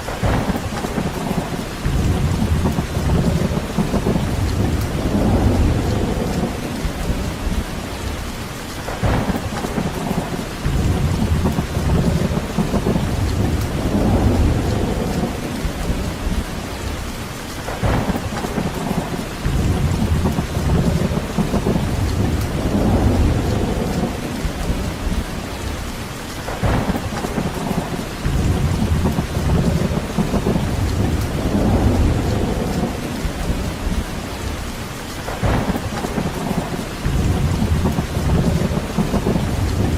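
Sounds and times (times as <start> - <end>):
heavy rain: 0.0 - 39.9
deep rumbles: 0.1 - 25.9, 26.5 - 39.9.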